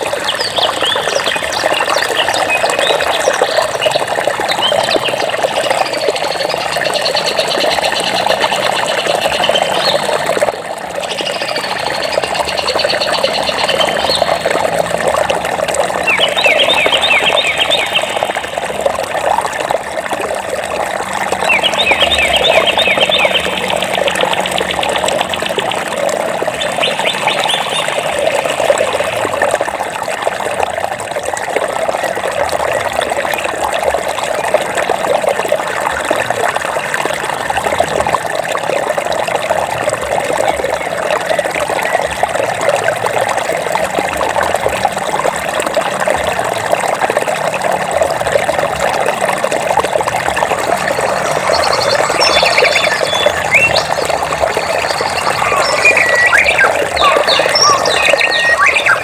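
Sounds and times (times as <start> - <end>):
flowing water rushing: 0.0 - 59.0
birds trilling chirps: 11.1 - 14.6, 15.9 - 18.6, 21.4 - 25.8, 26.5 - 29.1, 50.6 - 59.0.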